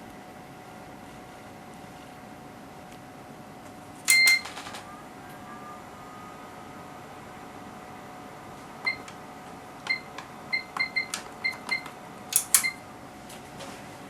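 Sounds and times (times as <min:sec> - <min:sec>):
short high-pitched beeps: 0:04.1 - 0:04.5.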